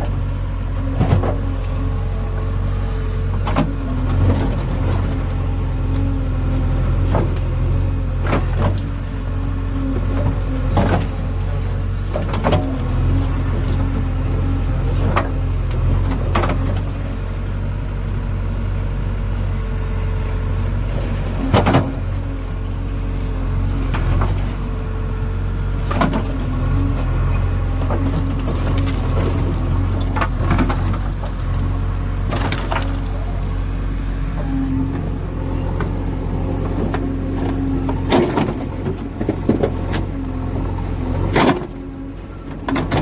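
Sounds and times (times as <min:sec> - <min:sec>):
diesel engine running under load: 0:00.0 - 0:43.0.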